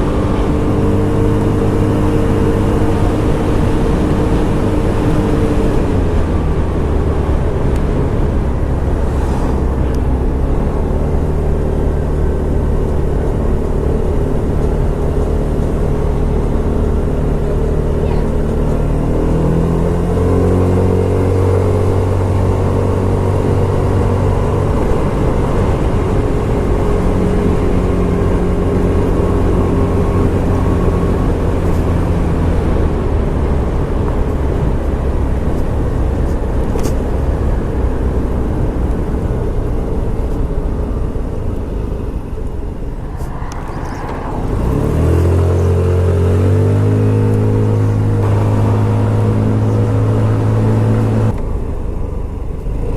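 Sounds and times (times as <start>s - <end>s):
steady rushing noise: 0.0s - 17.2s, 40.3s - 52.9s
scooter engine running: 44.6s - 51.8s.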